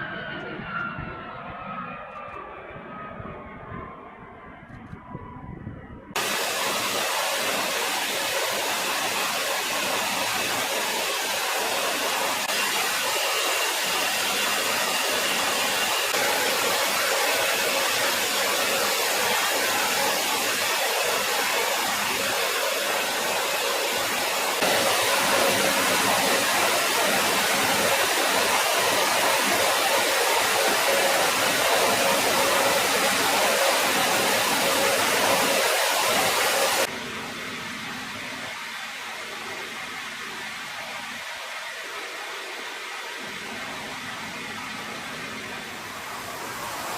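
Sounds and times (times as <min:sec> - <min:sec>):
jet engines roaring: 0:00.0 - 0:46.9.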